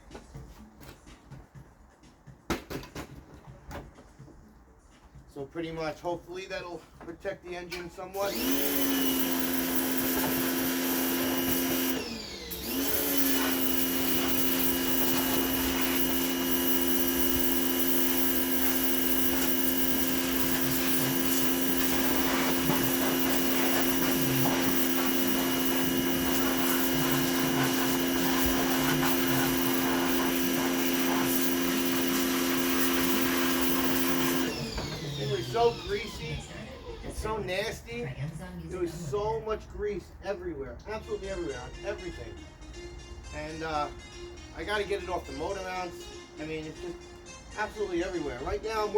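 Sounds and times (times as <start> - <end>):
pressure washer motor hum: 8.1 - 37.2
water spray hissing: 8.2 - 34.6.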